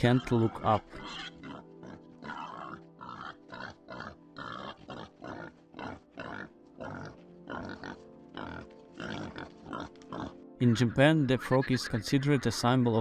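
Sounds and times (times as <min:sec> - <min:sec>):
pig grunting: 0:00.0 - 0:12.0.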